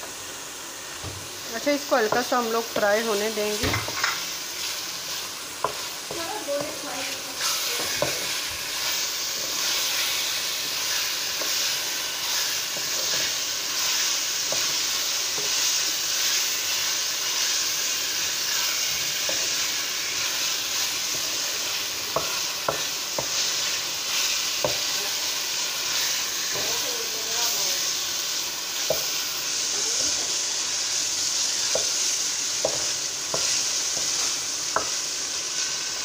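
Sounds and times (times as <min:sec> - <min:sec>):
chicken sizzling in a pan: 0:00.0 - 0:36.0
spatula scraping pan: 0:02.0 - 0:28.0.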